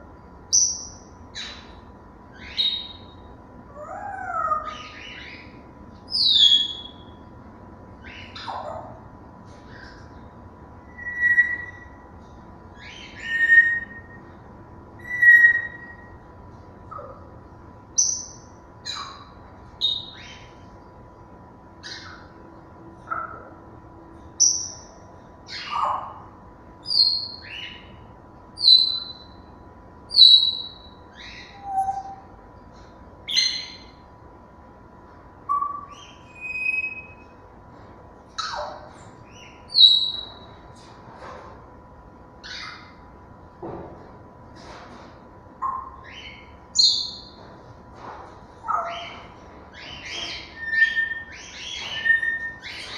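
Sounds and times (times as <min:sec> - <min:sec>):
parrots whistling and squawking: 0:03.8 - 0:07.0, 0:08.0 - 0:09.0, 0:10.9 - 0:12.0, 0:12.8 - 0:14.2, 0:15.0 - 0:16.1, 0:18.0 - 0:20.5, 0:21.8 - 0:22.4, 0:25.5 - 0:26.3, 0:30.2 - 0:32.3, 0:33.3 - 0:33.9, 0:35.5 - 0:37.3, 0:38.4 - 0:40.4, 0:42.4 - 0:43.0, 0:45.6 - 0:47.3, 0:48.6 - 0:52.9.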